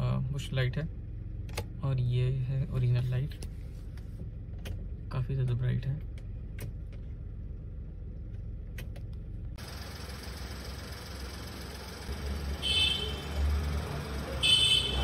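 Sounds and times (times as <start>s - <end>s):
car engine idling: 6.0s - 15.0s.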